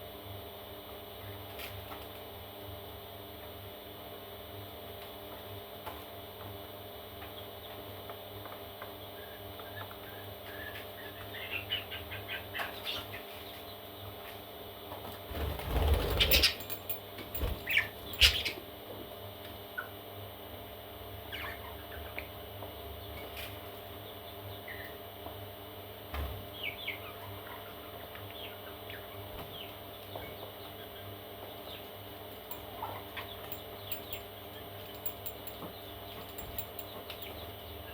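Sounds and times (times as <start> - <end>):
parrot chicks chirping: 9.2 - 13.8, 15.9 - 16.8, 17.6 - 18.7, 21.1 - 22.3, 26.5 - 37.9.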